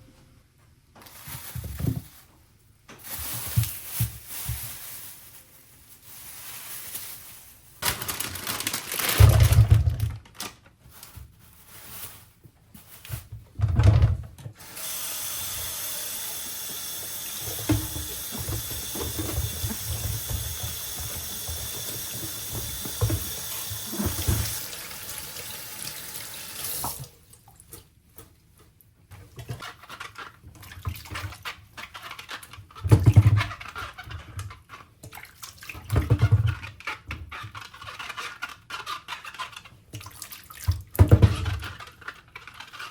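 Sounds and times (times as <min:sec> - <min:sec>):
thuds and clatter of handling: 0:00.9 - 0:04.9, 0:08.0 - 0:10.2, 0:13.0 - 0:14.5, 0:17.4 - 0:24.6, 0:32.8 - 0:34.1, 0:41.0 - 0:41.8
tap water running into sink: 0:14.7 - 0:27.8.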